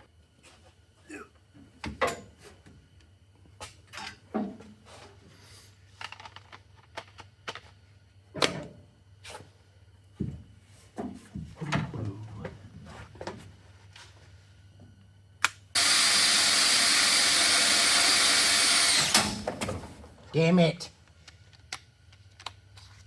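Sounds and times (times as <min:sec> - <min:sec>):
tools and metal clunking: 0:01.8 - 0:02.7
steady low hum: 0:06.6 - 0:15.8.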